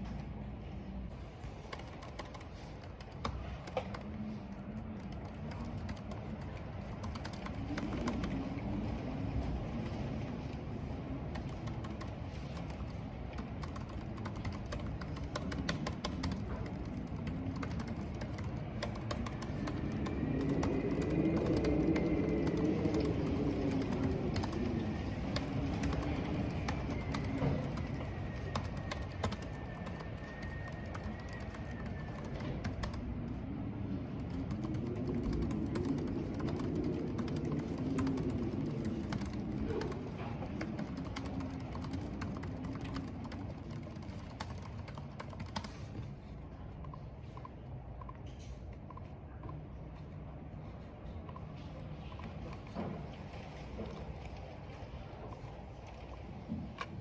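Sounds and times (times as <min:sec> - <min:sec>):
wind howling in corridor: 0:00.0 - 0:57.0
computer keyboard typing: 0:01.6 - 0:08.6, 0:11.3 - 0:33.4, 0:34.2 - 0:46.1
rain: 0:04.0 - 0:43.9.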